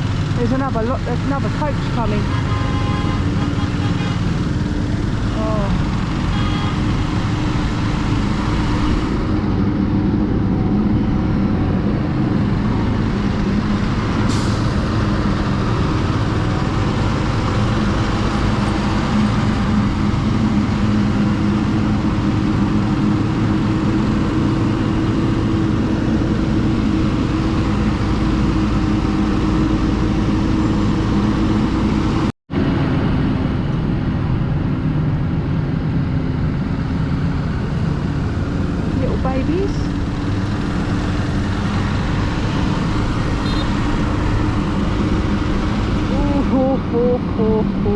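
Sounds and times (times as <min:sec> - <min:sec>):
motorcycle engine running: 0:00.0 - 0:09.2, 0:28.8 - 0:32.3
wind and road noise: 0:00.0 - 0:47.9.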